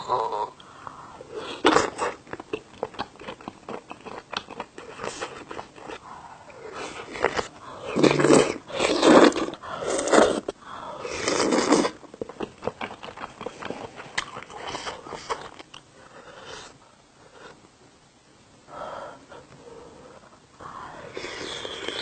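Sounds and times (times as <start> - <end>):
wet mouthfuls of eating: 1.5 - 15.8
chewing with mouth clicks: 1.6 - 6.0, 11.3 - 15.9.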